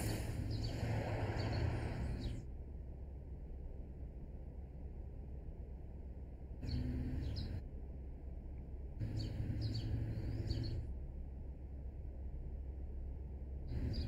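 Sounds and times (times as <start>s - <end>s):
small birds chirping: 0.0s - 2.5s, 6.6s - 7.6s, 9.0s - 11.0s, 13.6s - 14.0s
low steady background hum: 0.0s - 14.0s.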